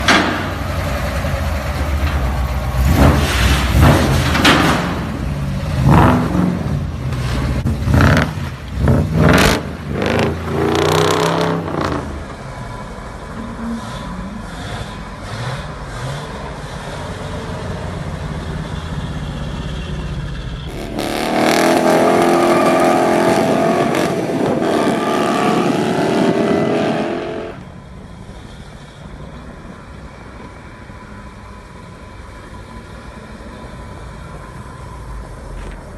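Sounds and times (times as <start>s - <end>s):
engine revving: 5.7s - 12.3s, 20.7s - 27.7s.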